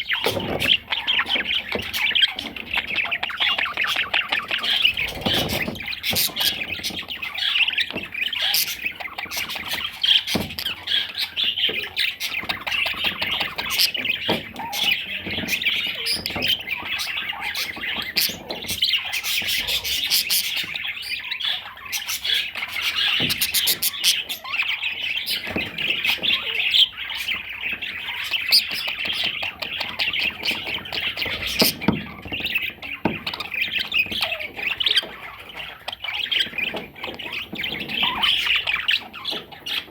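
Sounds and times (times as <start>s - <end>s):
budgerigar chattering: 0.0s - 39.9s.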